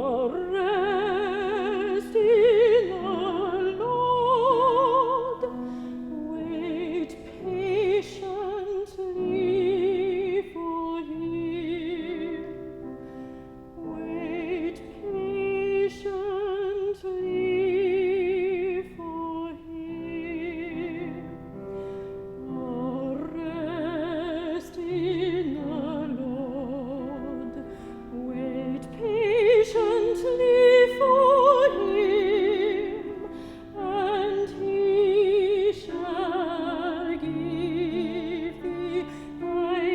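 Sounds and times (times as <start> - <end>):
classical singer with vibrato: 0.0 - 39.9.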